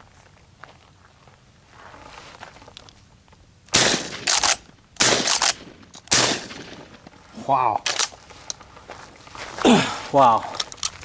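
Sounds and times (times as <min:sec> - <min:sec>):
loud shotgun blasts: 0:03.7 - 0:07.1.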